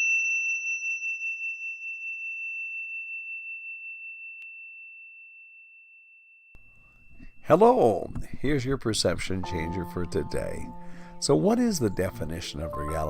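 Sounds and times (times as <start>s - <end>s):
high-pitched bell ringing: 0.0s - 7.7s.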